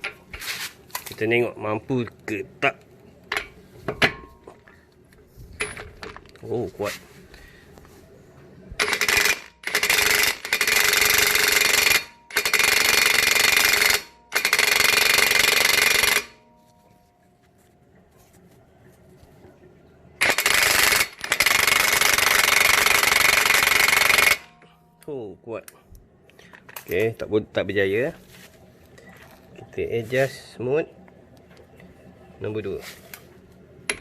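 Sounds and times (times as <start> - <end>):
impact wrench hammering: 8.8 - 16.4, 20.2 - 24.7.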